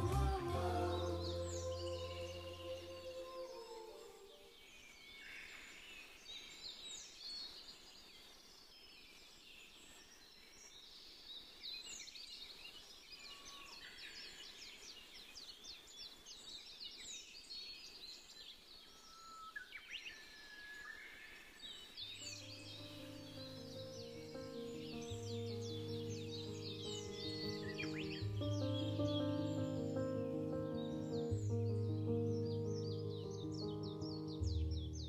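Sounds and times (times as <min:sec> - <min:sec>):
birds chirping and trilling: 0:00.0 - 0:06.4, 0:18.8 - 0:35.0
faint steady background hiss: 0:21.0 - 0:35.0.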